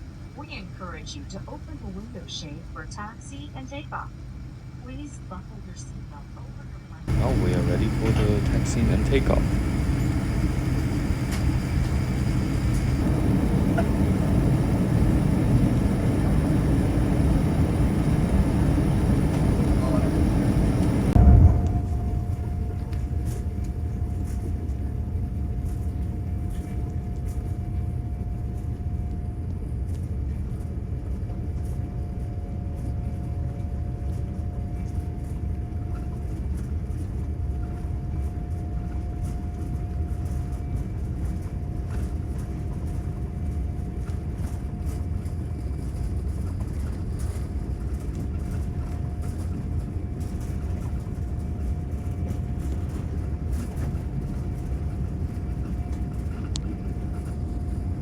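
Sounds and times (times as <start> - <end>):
steady whine: 0.0 - 35.4, 44.4 - 58.0
aircraft engine and wheel rumble: 0.0 - 58.0.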